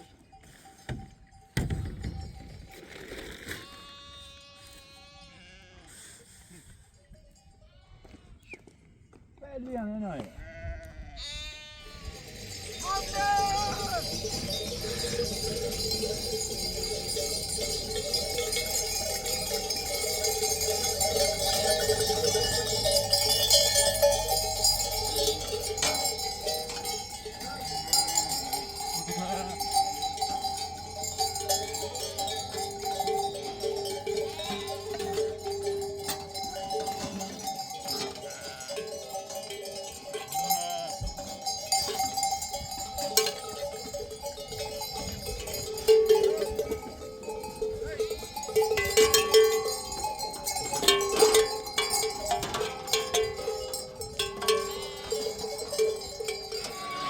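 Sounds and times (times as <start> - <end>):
livestock bells clinking: 0.0 - 5.7, 6.3 - 9.0, 11.2 - 57.0.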